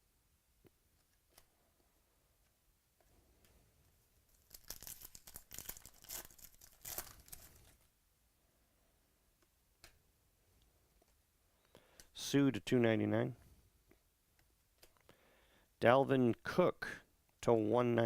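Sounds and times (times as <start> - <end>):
foil wrapper tearing and crumpling: 4.4 - 7.8.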